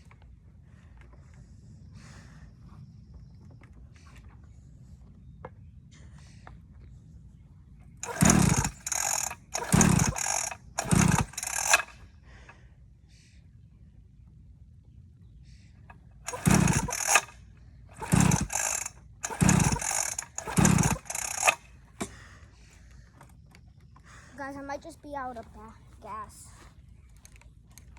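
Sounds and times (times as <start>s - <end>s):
dirt bike engine sputtering: 8.0s - 12.0s, 16.3s - 22.3s.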